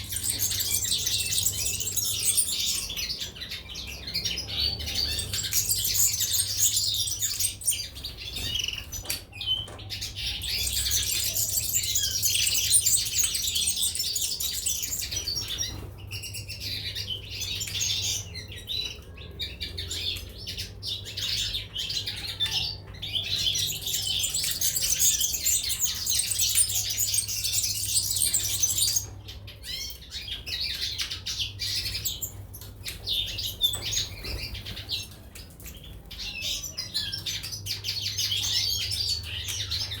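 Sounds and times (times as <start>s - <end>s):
finches and canaries chirping: 0.0s - 40.0s.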